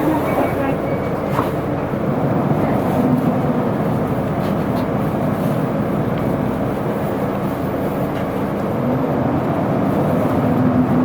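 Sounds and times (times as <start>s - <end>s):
bus diesel engine running: 0.0s - 11.0s
road noise: 0.0s - 11.0s.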